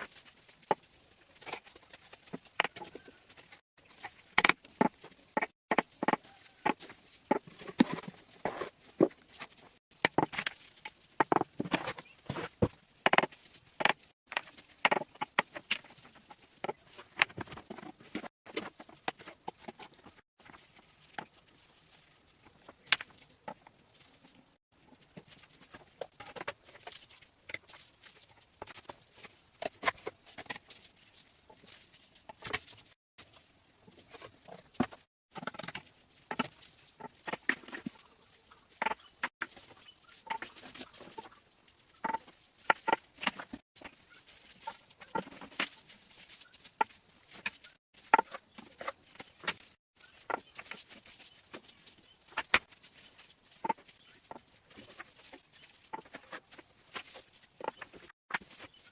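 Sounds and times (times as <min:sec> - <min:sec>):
clicks taps and scrapes of hand work: 0:00.0 - 0:21.4.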